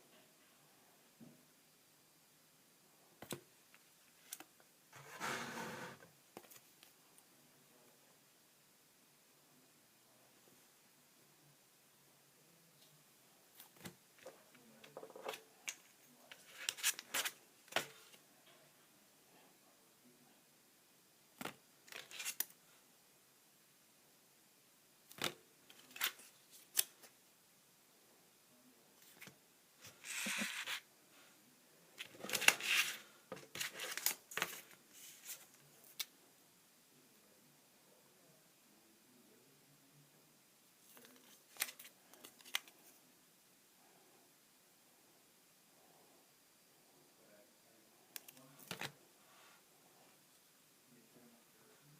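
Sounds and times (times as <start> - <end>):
cards rustling: 14.9 - 18.2, 21.9 - 22.6, 25.1 - 27.1, 29.0 - 30.8, 32.0 - 36.1, 40.9 - 42.9, 48.2 - 49.0
trading cards clicking and rustling: 30.0 - 30.8, 32.0 - 36.1.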